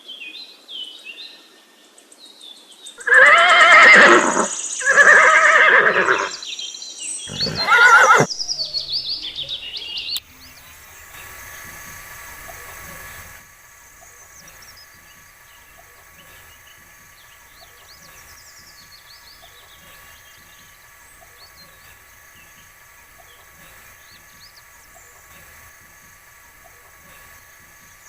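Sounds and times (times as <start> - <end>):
background hiss: 0.0 - 28.0
small birds chirping: 0.0 - 28.0
faint hum: 7.3 - 28.0.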